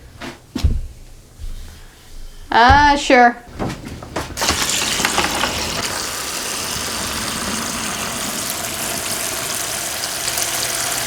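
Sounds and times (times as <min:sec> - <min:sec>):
water rushing into a bucket: 0:04.4 - 0:11.0.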